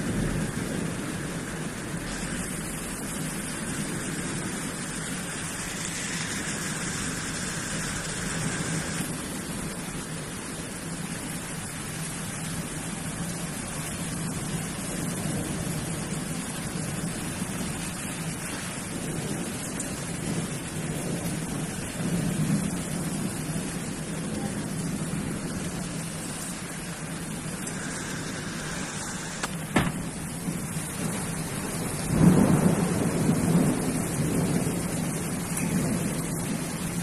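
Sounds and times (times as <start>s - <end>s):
heavy rain pouring: 0.0s - 37.0s.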